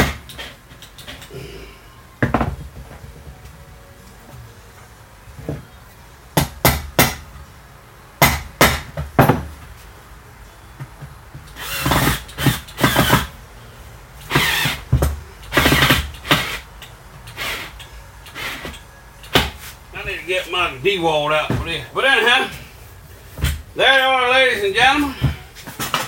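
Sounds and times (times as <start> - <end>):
screw-driving bursts: 11.5 - 13.4, 14.2 - 19.4.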